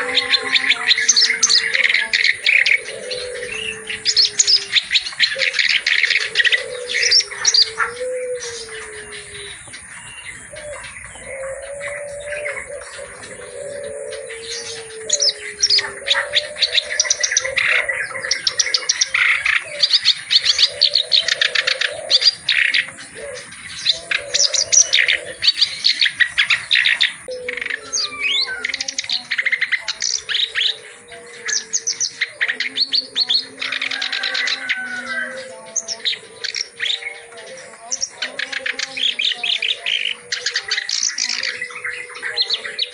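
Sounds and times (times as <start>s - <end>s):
reed warbler chattering song: 0.0s - 42.9s.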